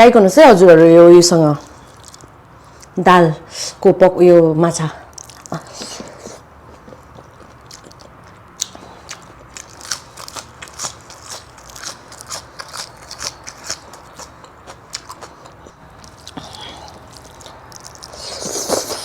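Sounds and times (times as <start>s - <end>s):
person chewing crunchy food: 1.8s - 2.9s, 5.1s - 19.0s.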